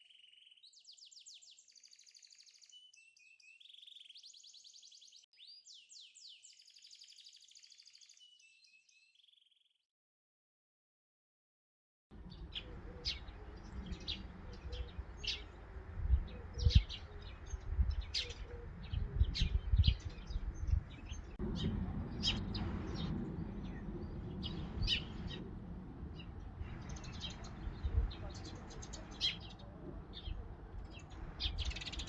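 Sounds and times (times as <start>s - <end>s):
low rumble: 12.2s - 32.0s
small birds chirping: 12.2s - 32.0s.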